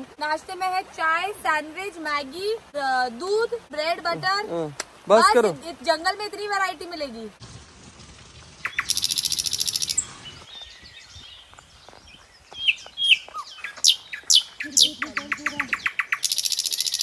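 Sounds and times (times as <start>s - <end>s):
birds chirping: 8.4s - 17.0s
bird trilling: 8.6s - 10.4s, 12.6s - 17.0s.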